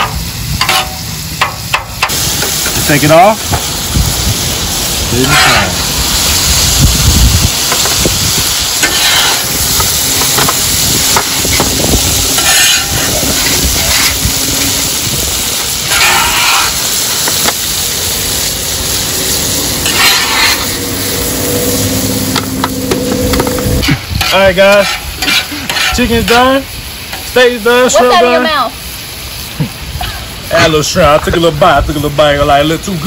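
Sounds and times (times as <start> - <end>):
shrimp sizzling on griddle: 0.0 - 33.0
metal spatula scraping steel: 5.1 - 5.8, 8.6 - 17.6, 19.1 - 26.5.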